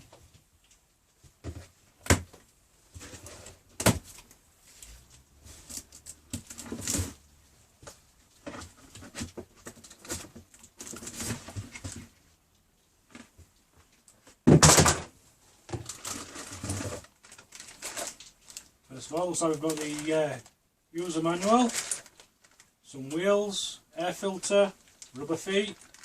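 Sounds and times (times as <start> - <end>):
cardboard rustling and scraping: 2.9 - 7.3, 8.3 - 12.2, 15.8 - 18.6.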